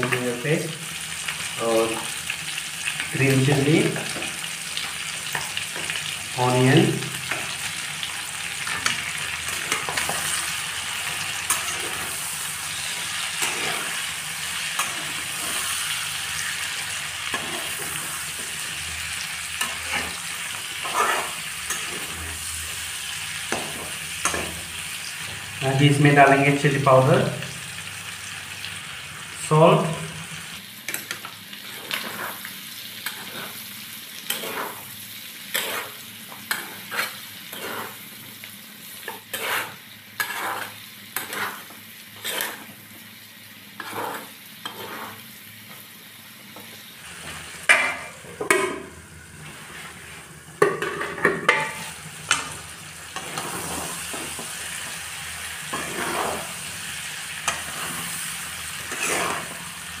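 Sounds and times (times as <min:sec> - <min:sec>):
meat sizzling in fat: 0:00.0 - 0:50.9, 0:51.5 - 1:00.0
spatula scraping a pan: 0:07.3 - 0:25.4, 0:30.9 - 0:38.1, 0:38.8 - 0:42.8, 0:43.8 - 0:45.3, 0:49.4 - 0:59.7.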